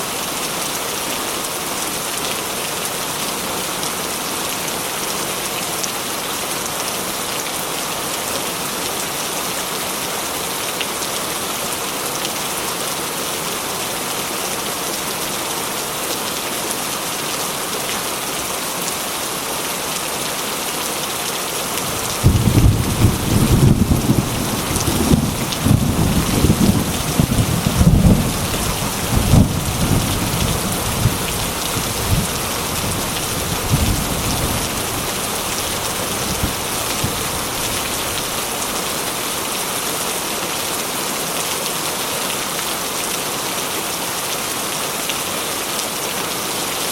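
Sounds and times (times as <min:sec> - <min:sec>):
heavy rain on a metal roof: 0:00.0 - 0:46.9
thunder rumbling: 0:21.9 - 0:37.2.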